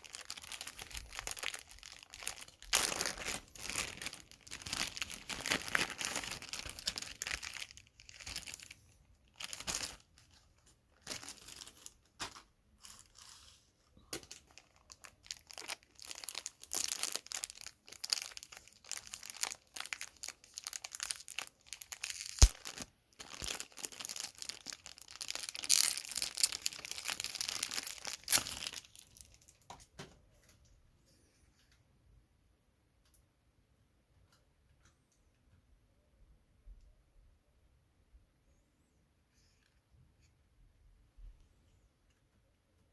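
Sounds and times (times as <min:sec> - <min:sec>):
packaging crinkling and tearing: 0:00.0 - 0:13.5, 0:14.2 - 0:29.6.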